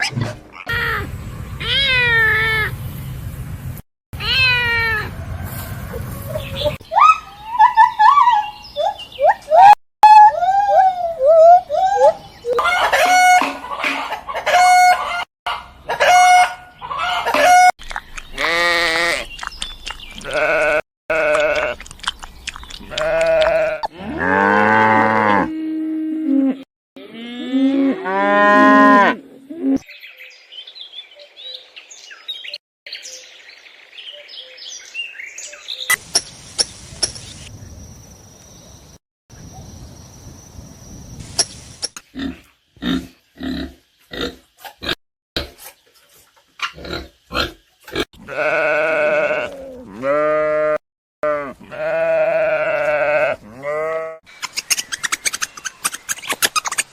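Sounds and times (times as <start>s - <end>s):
livestock bleating: 20.2s - 21.8s, 22.9s - 25.5s, 48.2s - 54.2s.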